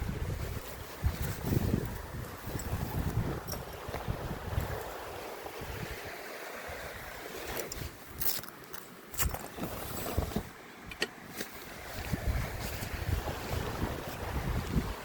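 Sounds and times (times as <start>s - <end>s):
wind gusting across microphone: 0.0s - 8.4s, 11.5s - 15.0s.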